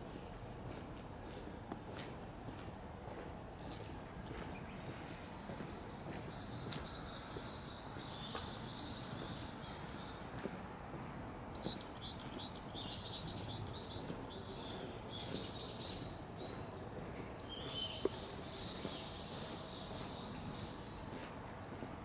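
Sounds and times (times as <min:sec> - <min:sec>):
small birds chirping: 0:03.6 - 0:10.2, 0:11.5 - 0:21.3.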